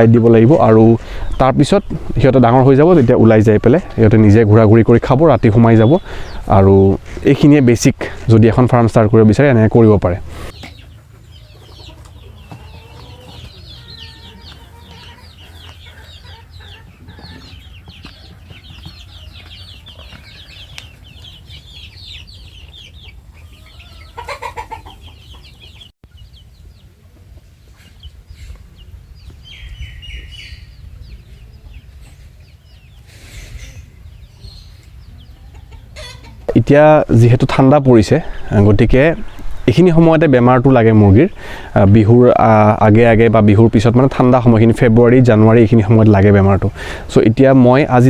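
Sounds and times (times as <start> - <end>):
chickens clucking: 0.0 - 48.0
chicks peeping: 0.0 - 48.0
chicken squawk: 10.3 - 26.3, 35.2 - 36.5.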